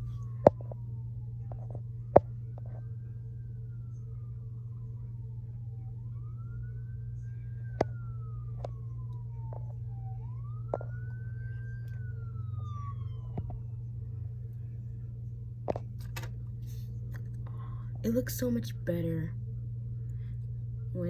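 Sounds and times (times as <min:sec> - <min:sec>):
siren wailing: 0:00.0 - 0:14.9
steady low hum: 0:00.0 - 0:21.0.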